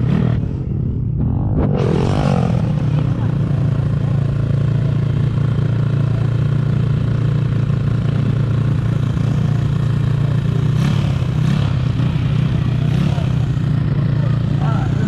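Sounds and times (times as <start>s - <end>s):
pit bike engine running: 0.0s - 15.0s.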